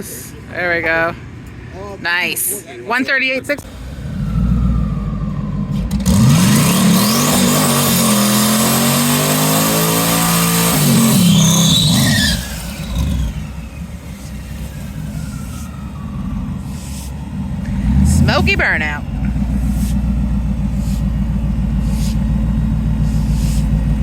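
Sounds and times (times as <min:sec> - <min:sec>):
drag race car accelerating: 0:03.6 - 0:24.0.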